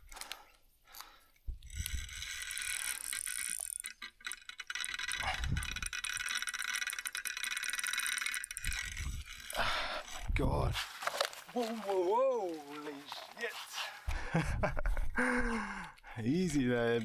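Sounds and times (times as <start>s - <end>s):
fishing reel clicking rapidly: 1.6s - 10.3s.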